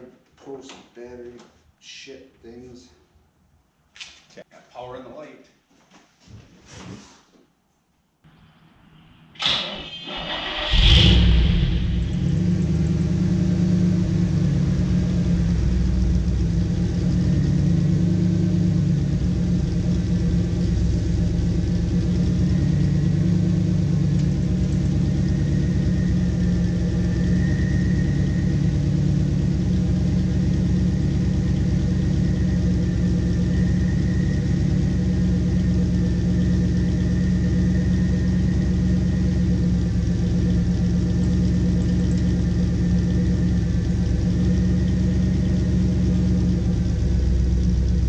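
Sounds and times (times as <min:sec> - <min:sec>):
car engine idling: 0:09.8 - 0:48.0.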